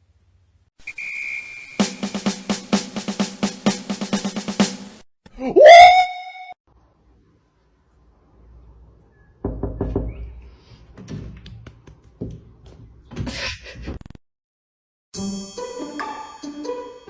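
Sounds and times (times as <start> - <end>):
irregular knocks and taps: 9.4 - 10.3, 10.9 - 13.3.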